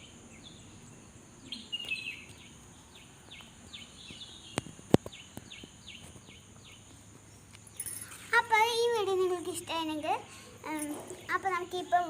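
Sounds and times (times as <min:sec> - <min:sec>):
small bird chirping: 0:00.0 - 0:08.4.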